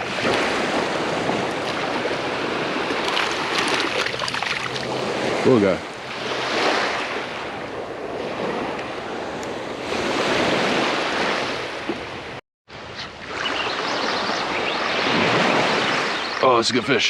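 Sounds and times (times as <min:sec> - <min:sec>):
small waves washing on beach: 0:00.0 - 0:12.4
wind on microphone: 0:00.0 - 0:16.4.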